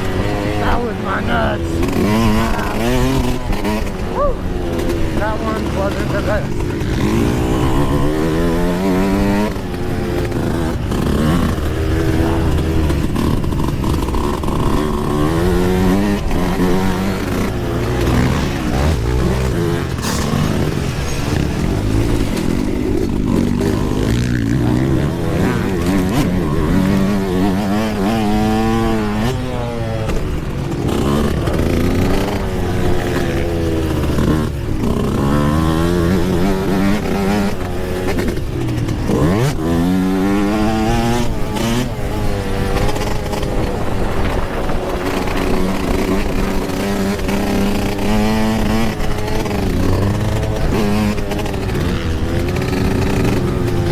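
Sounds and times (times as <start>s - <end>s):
two-stroke dirt bike engine revving: 0.0s - 53.9s.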